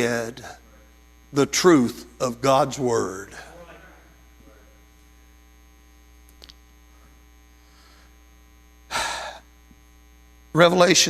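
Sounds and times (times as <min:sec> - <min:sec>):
electrical mains hum: 0:00.0 - 0:11.0
small click: 0:06.3 - 0:06.6.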